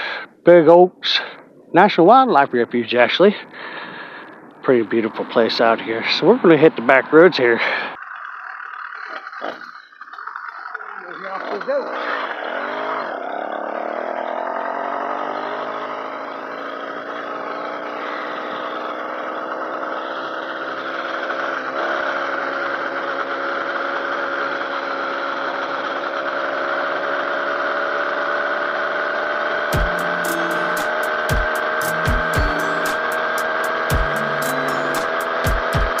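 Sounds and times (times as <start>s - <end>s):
small engine pulling away: 2.8s - 36.0s.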